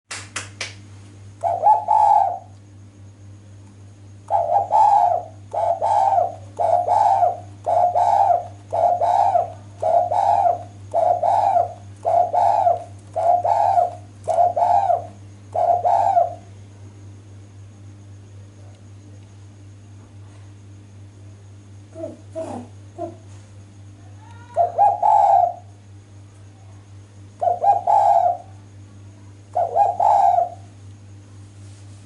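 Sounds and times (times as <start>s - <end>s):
steady low hum: 0.1s - 32.0s
dove cooing: 1.4s - 2.5s, 4.3s - 16.5s, 21.9s - 23.4s, 24.4s - 25.8s, 27.4s - 28.6s, 29.3s - 30.7s.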